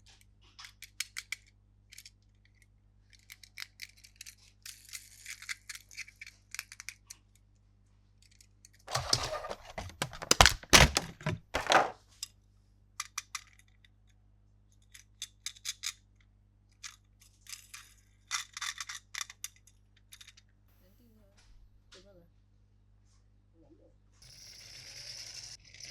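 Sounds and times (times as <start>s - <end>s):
plastic parts clicking: 0.6s - 7.2s, 8.2s - 12.0s, 16.8s - 20.4s
packaging rustling: 8.9s - 12.0s.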